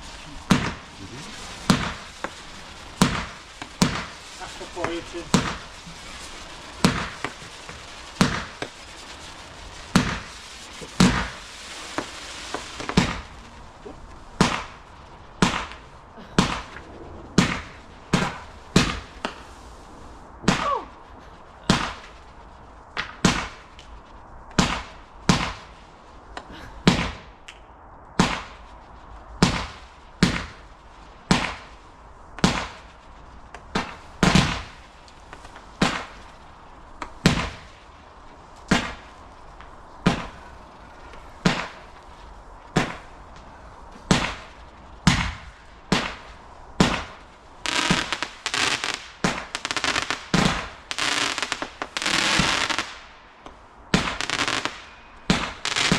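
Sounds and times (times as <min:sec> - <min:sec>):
fireworks bangs: 0:00.0 - 0:27.5, 0:28.2 - 0:55.9
crackling hiss: 0:00.0 - 0:55.9.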